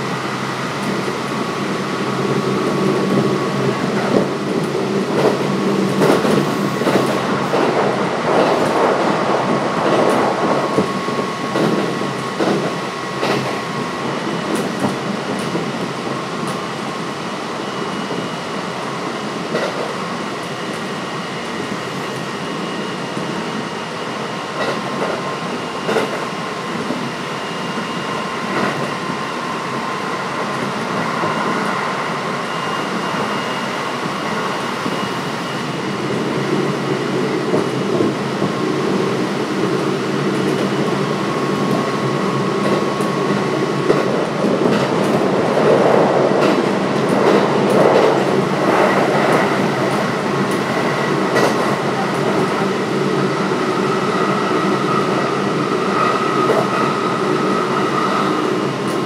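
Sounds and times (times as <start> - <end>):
rail joint clicks: 2.6 - 15.8, 19.5 - 20.9, 24.5 - 25.2, 25.8 - 27.0, 39.6 - 40.9, 41.6 - 52.7, 55.9 - 56.9, 58.0 - 59.0.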